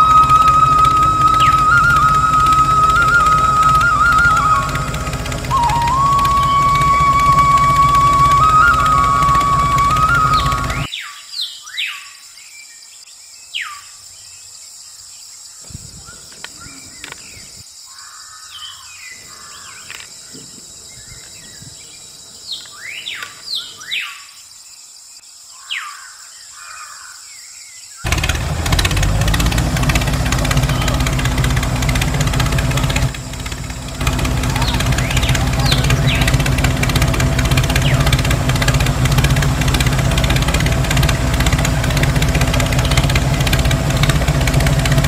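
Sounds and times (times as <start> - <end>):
loud engine-like running sound: 0.0 - 10.9, 28.1 - 45.0
steady high hum: 0.0 - 10.9
birds chirping: 0.0 - 24.7, 25.3 - 45.0.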